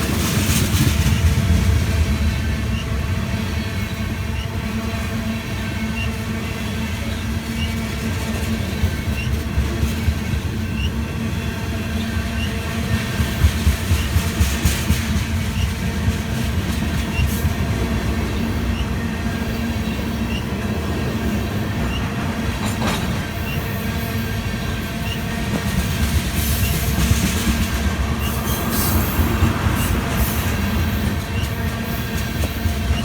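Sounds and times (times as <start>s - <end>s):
train cars rattling: 0.0s - 33.0s
train wheels rumbling on rail: 0.0s - 33.0s
light rail clicks: 21.8s - 23.6s.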